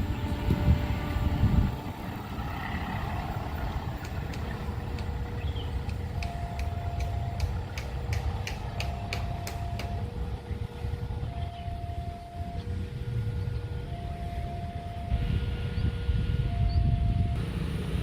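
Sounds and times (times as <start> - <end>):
train rumbling past: 0.0 - 18.0
two-tone crossing signal: 5.6 - 7.8, 8.6 - 17.4
sharp clicks: 5.8 - 10.0.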